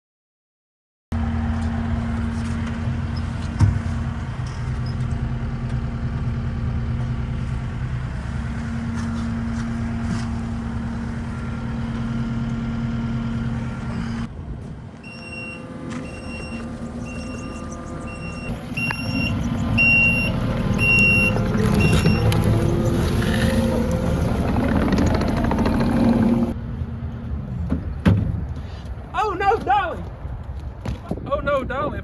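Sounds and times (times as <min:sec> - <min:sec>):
diesel engine running: 0:01.1 - 0:27.5
high beeping: 0:15.0 - 0:24.4.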